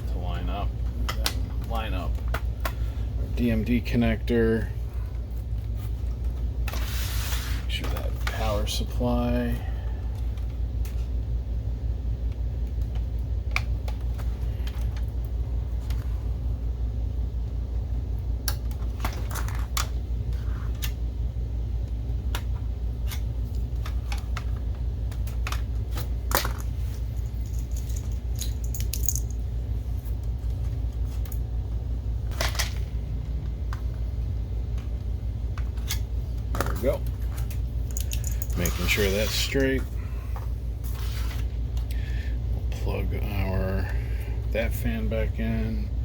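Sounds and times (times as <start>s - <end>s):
steady low hum: 0.0s - 46.0s
small parts clicking and rattling: 26.3s - 29.5s, 35.8s - 39.6s.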